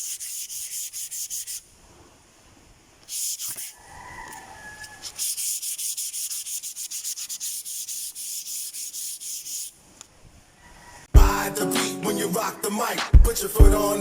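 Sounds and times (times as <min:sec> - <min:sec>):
sandpaper rubbing back and forth: 0:00.0 - 0:01.7, 0:03.1 - 0:03.8, 0:05.0 - 0:09.8.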